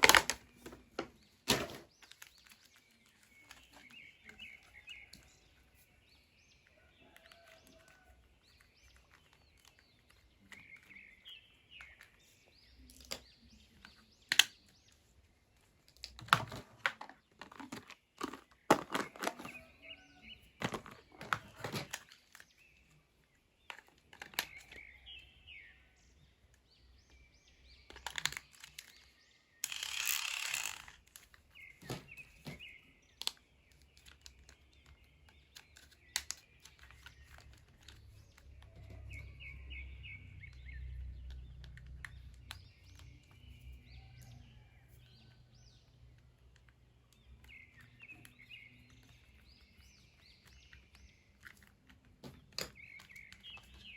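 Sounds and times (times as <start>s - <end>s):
packaging clicks: 0.0s - 5.6s, 27.9s - 39.3s
birds chirping: 0.0s - 53.9s.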